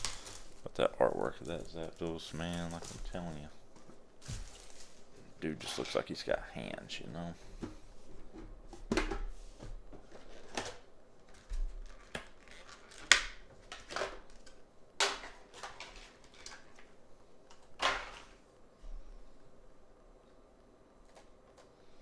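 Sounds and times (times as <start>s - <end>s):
plastic packaging rustling: 0.0s - 6.1s, 10.0s - 18.4s.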